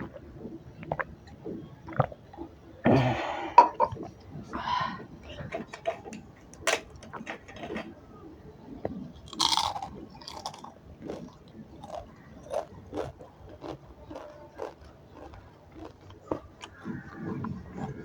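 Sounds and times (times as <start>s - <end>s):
crunchy bites: 9.3s - 17.4s
person chewing food: 9.3s - 18.0s.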